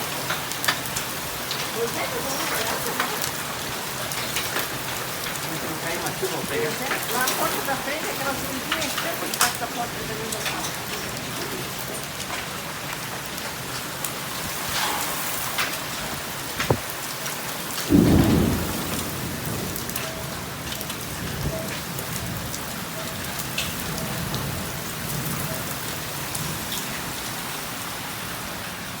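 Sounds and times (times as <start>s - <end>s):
hailstones clicking: 0.0s - 27.4s
heavy rain pouring: 0.0s - 29.0s
thunder clap: 17.9s - 22.9s.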